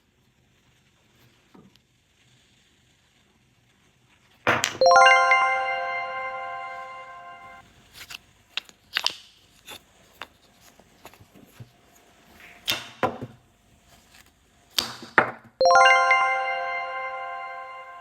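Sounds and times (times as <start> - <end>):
bell-like ding: 4.8 - 7.6, 15.6 - 18.0.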